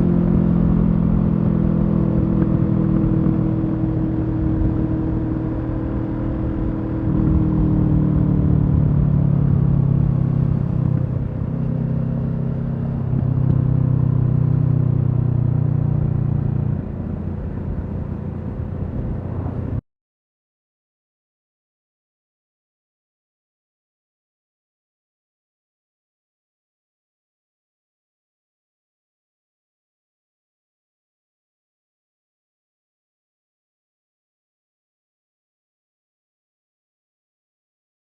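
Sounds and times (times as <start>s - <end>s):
motorcycle engine revving: 0.0s - 19.8s.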